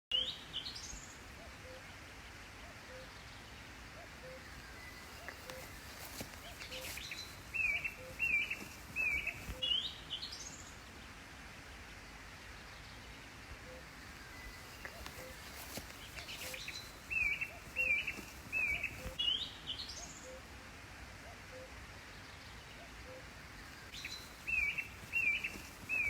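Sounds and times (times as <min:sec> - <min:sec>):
bird chirps: 0:04.0 - 0:10.3, 0:13.7 - 0:20.4, 0:23.0 - 0:26.0
outdoor hiss: 0:04.4 - 0:12.9.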